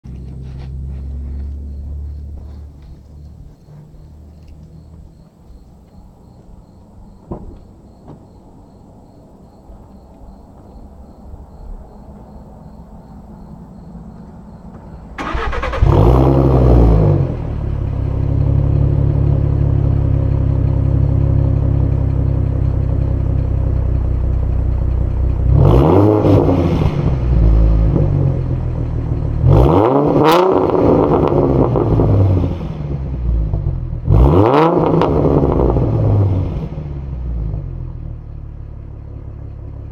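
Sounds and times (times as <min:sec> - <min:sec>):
car engine starting: 0:00.0 - 0:10.4, 0:11.2 - 0:39.9
car engine idling deep: 0:00.0 - 0:39.9
engine revving blips: 0:00.1 - 0:05.7, 0:14.1 - 0:38.3.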